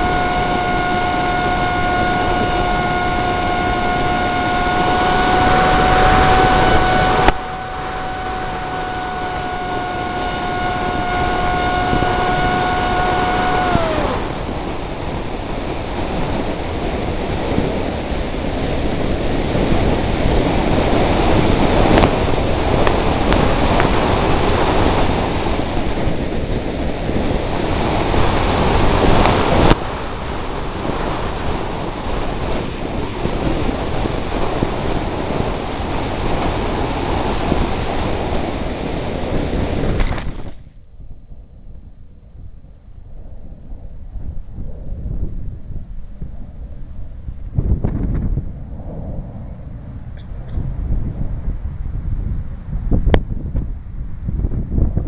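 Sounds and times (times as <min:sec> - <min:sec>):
electric motor and propeller whining: 0:00.0 - 0:40.6
wind buffeting microphone: 0:00.0 - 0:55.0.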